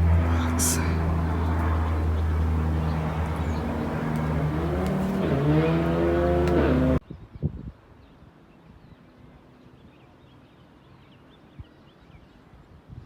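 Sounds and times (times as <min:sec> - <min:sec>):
vehicle engine humming and revving: 0:00.0 - 0:07.0.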